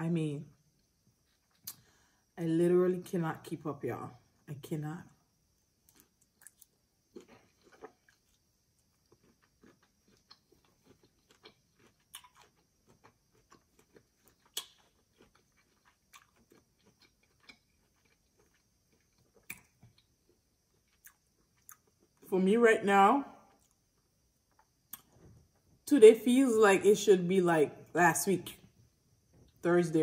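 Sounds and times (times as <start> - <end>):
chewing with wet mouth clicks: 5.9 - 22.2.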